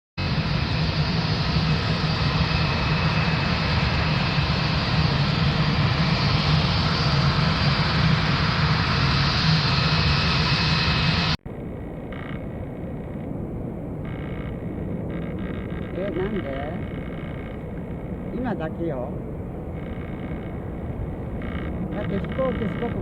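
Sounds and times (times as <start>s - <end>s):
loud engine humming: 14.0s - 23.0s.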